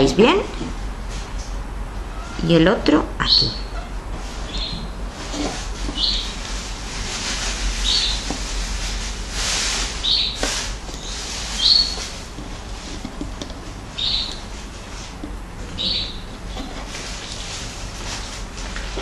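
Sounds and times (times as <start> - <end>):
bird chirping: 3.2 - 3.8, 4.5 - 5.0, 5.9 - 6.4, 7.8 - 8.3, 10.0 - 10.4, 11.0 - 12.1, 14.0 - 14.5, 15.8 - 16.3.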